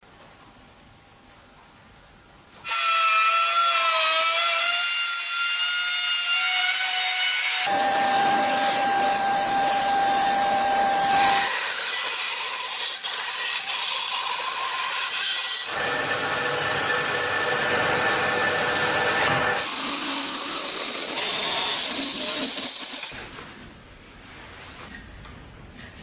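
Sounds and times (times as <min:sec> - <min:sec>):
power tool motor whine: 0:07.7 - 0:11.5.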